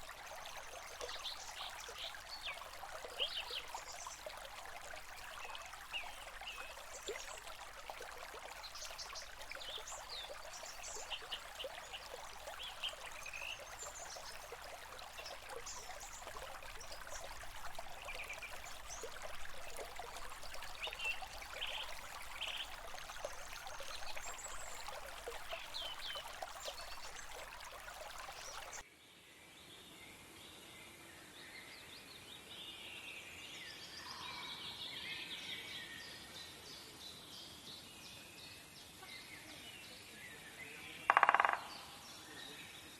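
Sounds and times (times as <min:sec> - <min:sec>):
stream running: 0:00.0 - 0:28.8, 0:41.1 - 0:42.9.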